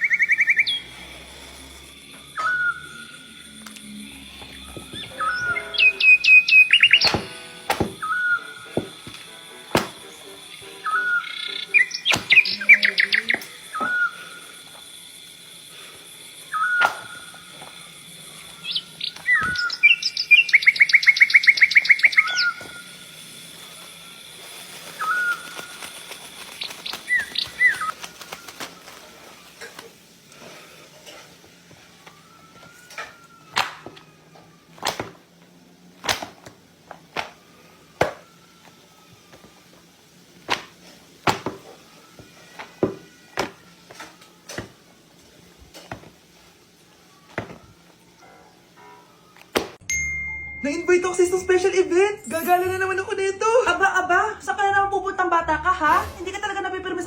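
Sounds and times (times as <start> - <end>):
bird chirping: 0.0 - 1.0, 2.0 - 28.9
bird trill: 0.0 - 1.1, 2.0 - 28.9.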